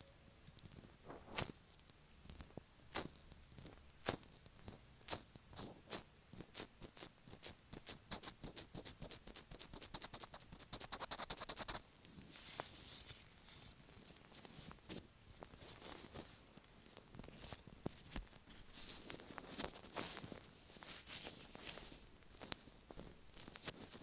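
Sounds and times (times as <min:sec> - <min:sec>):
soft scratchy rubbing: 0:10.0 - 0:24.0.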